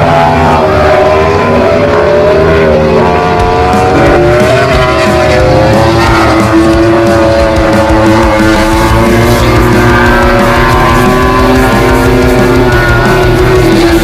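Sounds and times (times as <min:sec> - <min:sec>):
racing motorcycle engines whining: 0:00.0 - 0:14.0.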